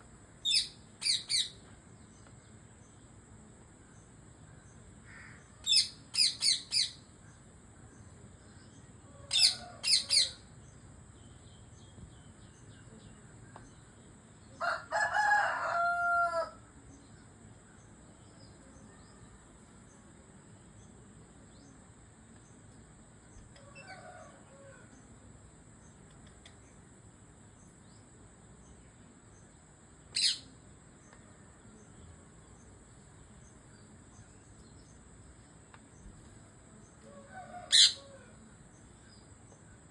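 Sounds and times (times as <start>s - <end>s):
parrot chirping: 0.4s - 1.6s, 30.1s - 30.5s, 37.7s - 38.0s
lower-pitched parrot calls: 9.3s - 10.4s, 30.1s - 30.5s, 37.7s - 38.1s.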